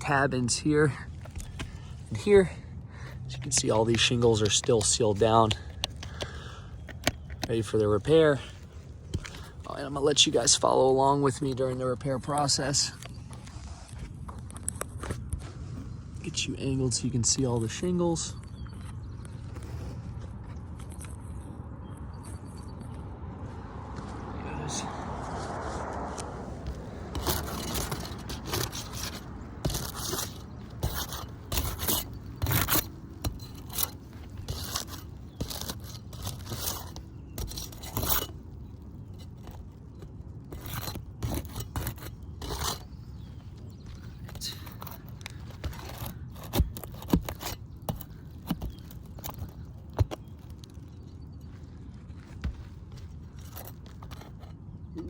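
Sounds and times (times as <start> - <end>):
roof shingles scraping and crackling: 25.5 - 51.0.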